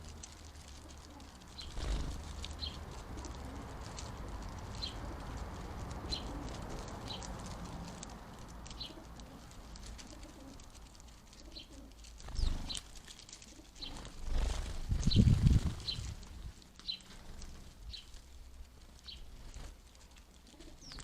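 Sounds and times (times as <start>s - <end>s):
low outdoor rumble: 0.0s - 21.0s
birds chirping: 0.7s - 21.0s.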